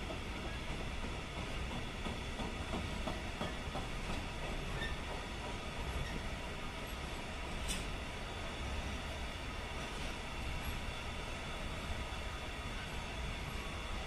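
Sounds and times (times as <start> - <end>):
wheels clicking over rail joints: 0.0 - 6.3
train wheels rumbling on rails: 0.0 - 14.0.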